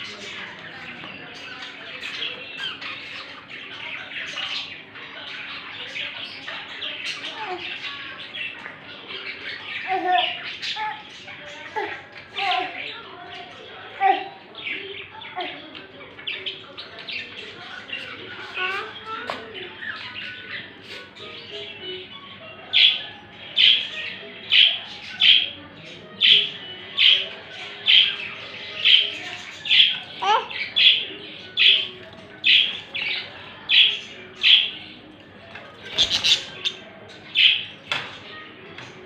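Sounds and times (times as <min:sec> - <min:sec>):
parrot calling: 0:35.8 - 0:37.8.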